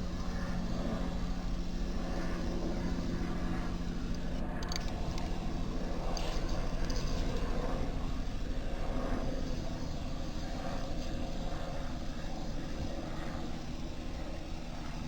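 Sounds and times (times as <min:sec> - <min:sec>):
engine drone with pulsing beat: 0:00.0 - 0:15.0.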